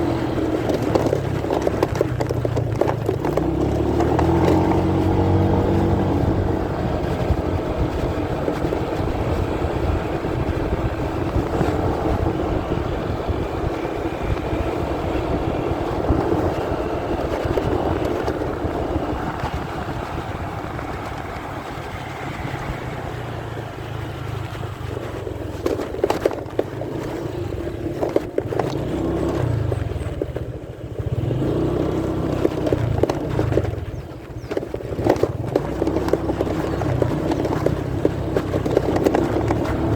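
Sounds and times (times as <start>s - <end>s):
muffled motorcycle engine: 0.0s - 39.9s.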